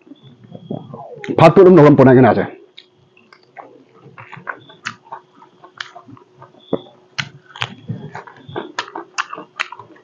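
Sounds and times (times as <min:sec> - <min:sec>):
faint steady hum: 0:00.0 - 0:10.0
wet chewing mouth smacks: 0:02.8 - 0:10.0.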